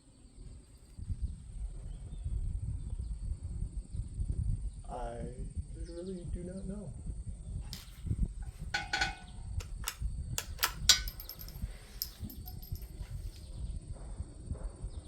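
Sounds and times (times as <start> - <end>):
metallic clicks and clanks: 8.8 - 13.0.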